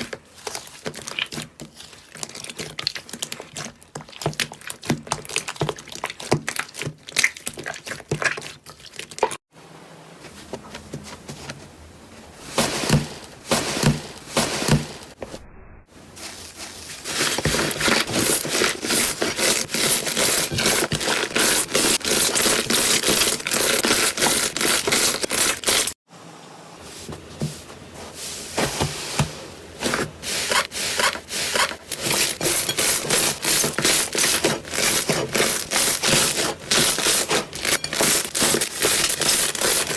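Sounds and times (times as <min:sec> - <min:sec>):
slime scraping: 0:00.0 - 0:09.4, 0:16.3 - 0:26.0, 0:29.8 - 0:39.9.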